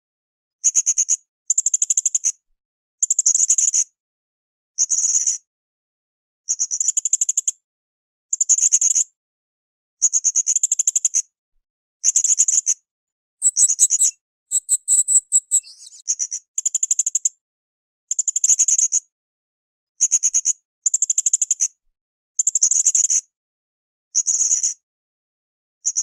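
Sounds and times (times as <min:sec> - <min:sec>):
parrot high-pitched chattering: 0:13.4 - 0:16.0.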